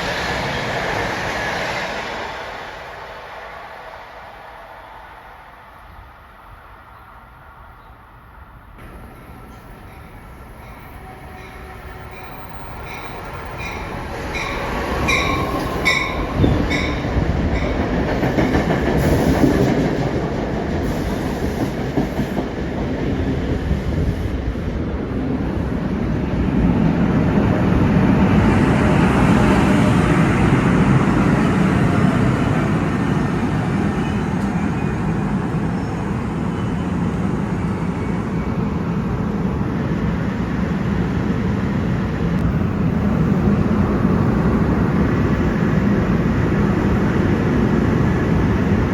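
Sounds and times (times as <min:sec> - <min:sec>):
train wheels clattering on rails: 0:08.8 - 0:24.0.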